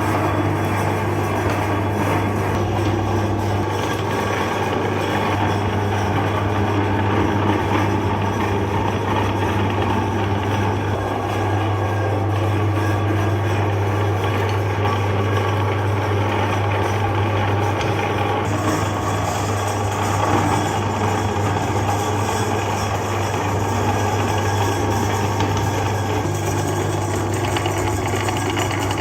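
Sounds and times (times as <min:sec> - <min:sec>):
electric meat grinder running: 0:00.0 - 0:29.0.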